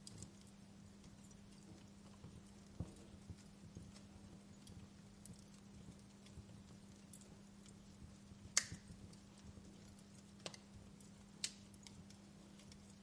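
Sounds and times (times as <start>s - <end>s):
faint low hum: 0.0s - 13.0s
wood fire crackling: 0.0s - 13.0s
sharp pops of fire: 8.5s - 9.0s.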